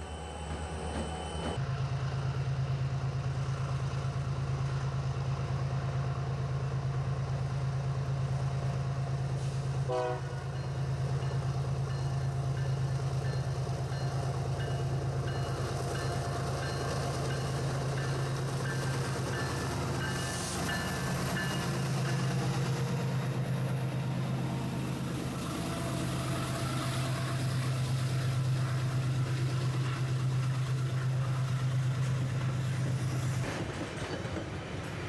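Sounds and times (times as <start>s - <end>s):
diesel locomotive engine drone: 0.0s - 35.0s
locomotive horn blast: 9.8s - 10.5s.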